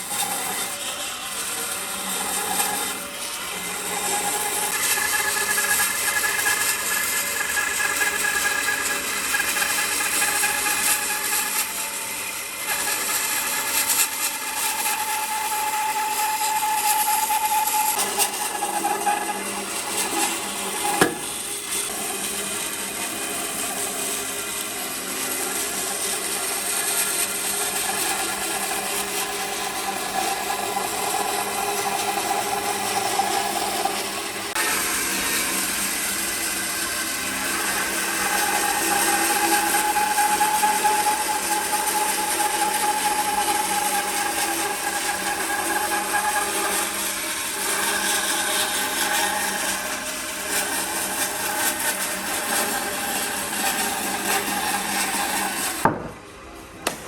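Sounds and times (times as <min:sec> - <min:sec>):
power tool working wood: 0:00.0 - 0:56.1
sharp knock: 0:55.8 - 0:56.2.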